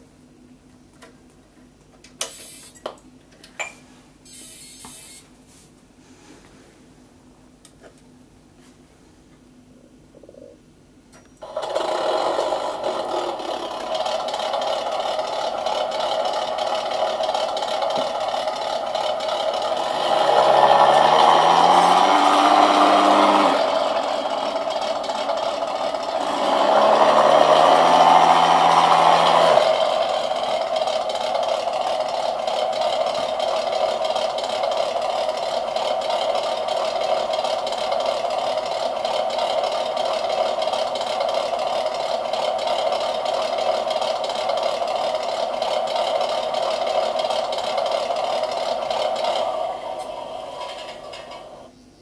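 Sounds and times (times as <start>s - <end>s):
simulated engine sound revving: 19.0s - 31.8s.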